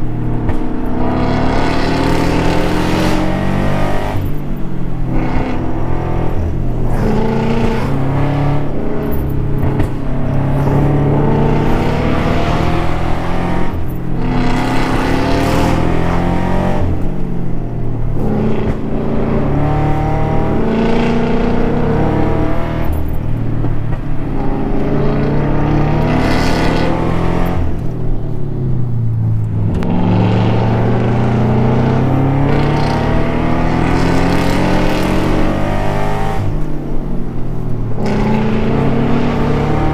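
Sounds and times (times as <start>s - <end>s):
car engine pulling hard: 0.0s - 39.9s.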